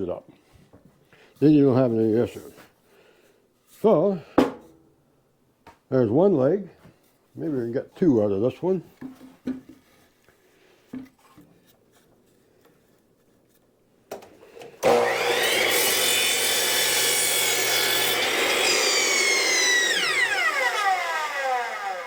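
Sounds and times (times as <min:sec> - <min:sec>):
miter saw cutting wood: 0:14.8 - 0:22.0
saw blade spinning down: 0:14.8 - 0:22.0.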